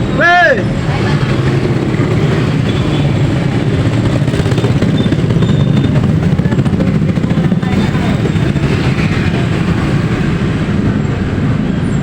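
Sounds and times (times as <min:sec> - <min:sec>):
road and wind noise: 0:00.0 - 0:12.0
vehicle engine running: 0:00.7 - 0:12.0.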